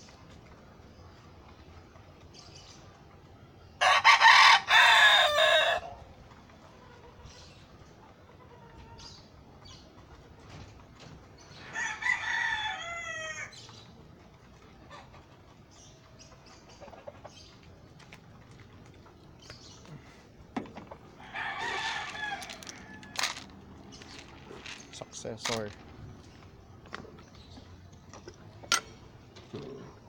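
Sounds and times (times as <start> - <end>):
rooster crowing: 3.8 - 5.9, 11.6 - 13.6, 21.2 - 23.5.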